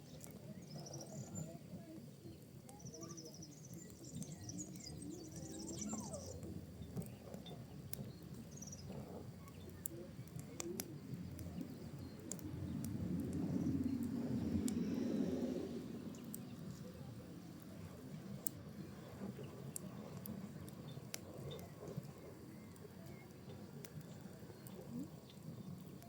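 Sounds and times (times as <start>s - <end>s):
low rumble of burning: 0.0s - 26.0s
wood fire crackling: 0.0s - 26.0s
sharp pops and snaps: 6.4s - 15.1s.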